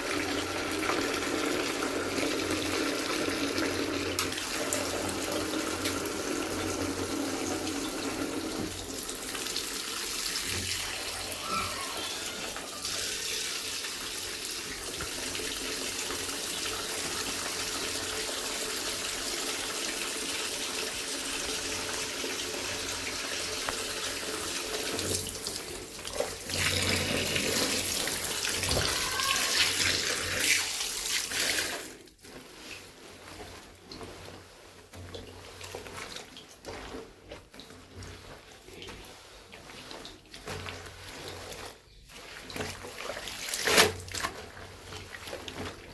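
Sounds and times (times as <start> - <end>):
water running from a tap: 0.0 - 32.2.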